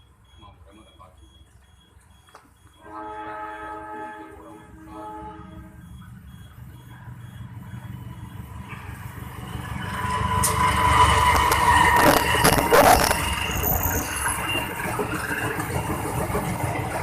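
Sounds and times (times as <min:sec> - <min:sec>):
train rumble: 0:01.2 - 0:17.0
train horn: 0:02.8 - 0:05.8
wheels on rails: 0:05.8 - 0:17.0.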